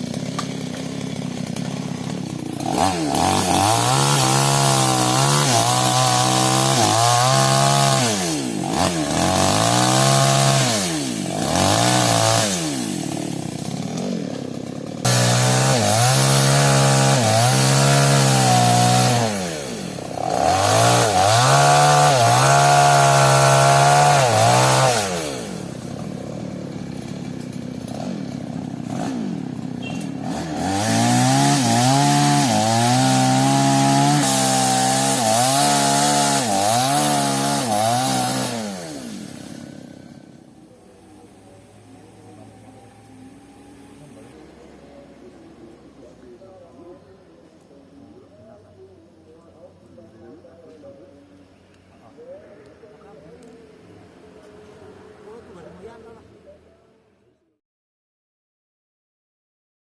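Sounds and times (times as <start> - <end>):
chainsaw revving and idling: 0.0 - 46.9.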